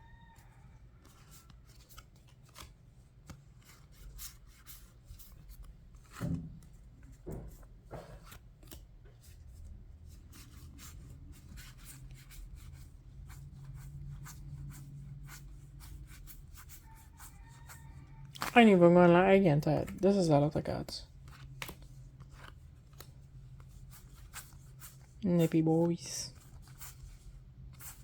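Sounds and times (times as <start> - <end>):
cards sliding and rubbing: 1.1 - 6.2, 21.2 - 25.7, 26.3 - 28.0.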